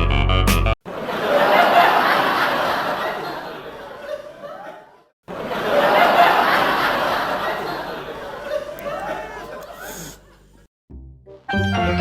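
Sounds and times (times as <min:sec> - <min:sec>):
people laughing and talking: 0:00.9 - 0:10.7.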